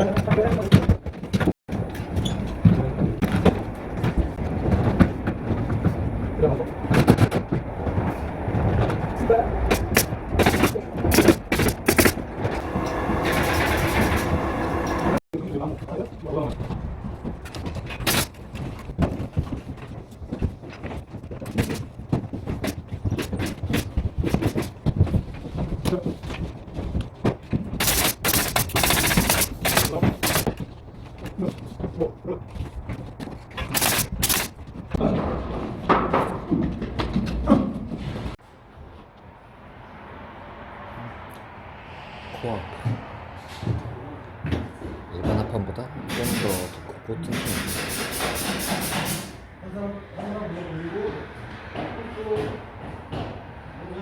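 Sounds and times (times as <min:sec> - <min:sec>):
nail gun firing: 0:09.7 - 0:12.2, 0:18.0 - 0:18.3, 0:27.8 - 0:30.5, 0:33.6 - 0:34.6, 0:46.1 - 0:49.4.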